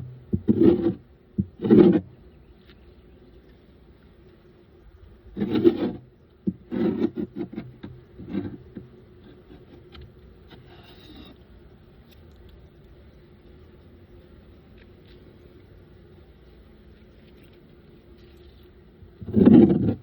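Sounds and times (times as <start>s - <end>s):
hive tool scraping wooden frames: 0.0s - 2.2s, 5.3s - 11.5s, 19.2s - 20.0s.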